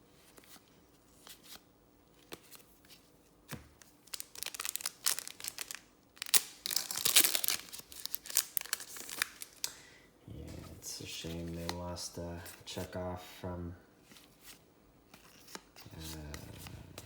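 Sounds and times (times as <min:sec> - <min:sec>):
card pack wrapper tearing: 0:04.1 - 0:09.7.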